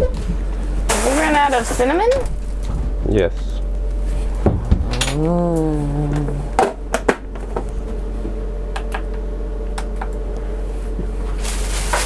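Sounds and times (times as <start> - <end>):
faint steady hum: 0.0 - 12.0
voice-like sound rising and falling: 4.7 - 6.7.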